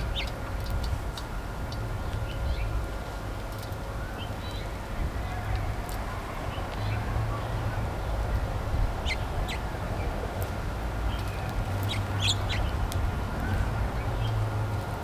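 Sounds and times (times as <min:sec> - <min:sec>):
steady low rumble: 0:00.0 - 0:15.0
songbirds chirping: 0:09.0 - 0:14.4.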